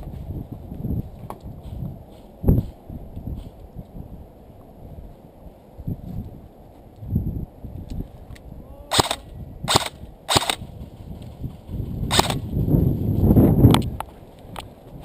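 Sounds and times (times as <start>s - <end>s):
airsoft gun shots: 8.9s - 10.6s, 12.1s - 12.4s.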